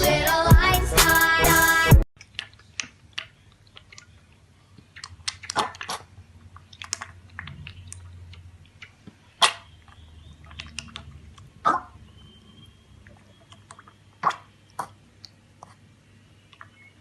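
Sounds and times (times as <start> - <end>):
pet chewing and crunching food: 2.2 - 12.0.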